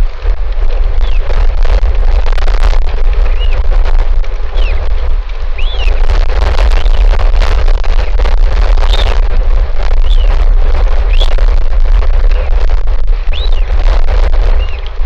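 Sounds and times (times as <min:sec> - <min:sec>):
wind buffeting microphone: 0:00.0 - 0:15.0
bird chirping: 0:05.6 - 0:06.0, 0:13.3 - 0:13.7.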